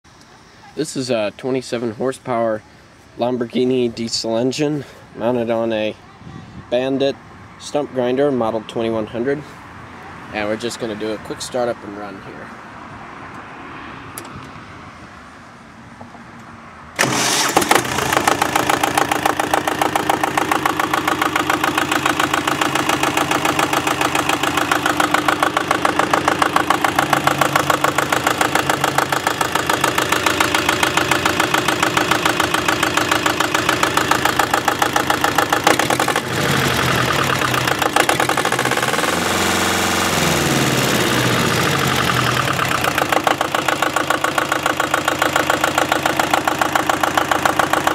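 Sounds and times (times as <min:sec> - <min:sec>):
diesel engine clattering: 0:17.0 - 0:47.9.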